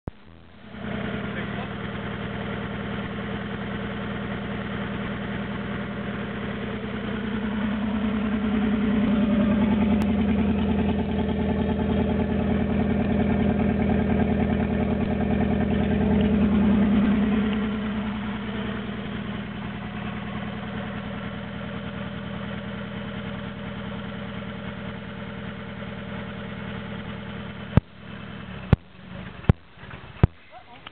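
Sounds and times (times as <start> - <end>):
engine idling roughly: 0.4 - 30.9.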